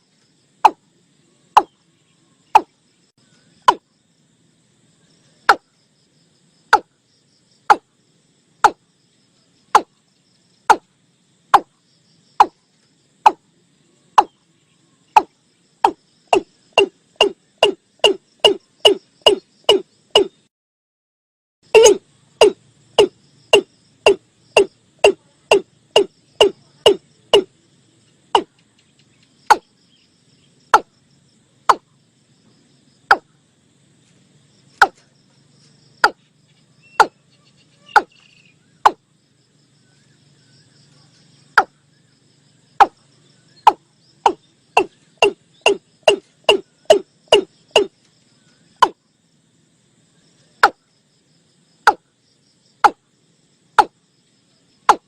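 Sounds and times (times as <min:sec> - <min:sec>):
watercock calling hollow notes: 0:15.2 - 0:20.4, 0:21.8 - 0:27.5, 0:43.7 - 0:47.9.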